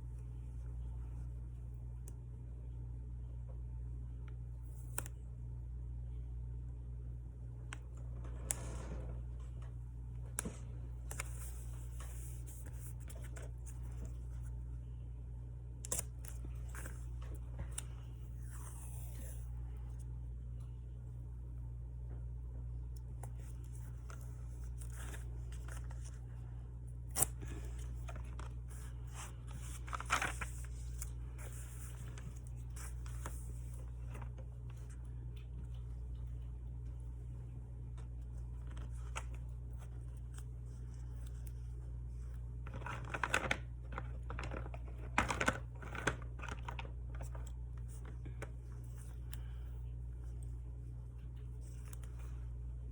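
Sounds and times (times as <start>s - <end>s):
steady low hum: 0.0s - 52.9s
paper rustling and tearing: 27.1s - 34.3s
paper rustling: 27.1s - 35.0s, 38.4s - 49.6s.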